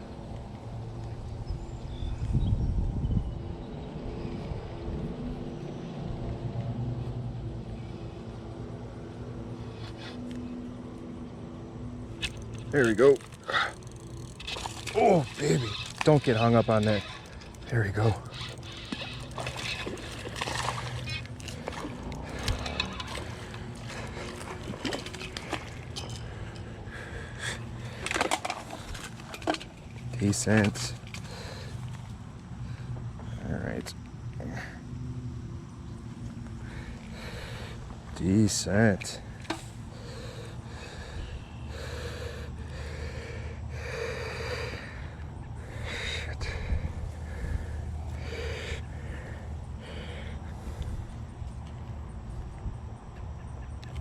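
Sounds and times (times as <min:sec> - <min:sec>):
steady low hum: 0:02.6 - 0:54.0
distant engine running: 0:04.9 - 0:29.1
water splashing: 0:12.5 - 0:25.8.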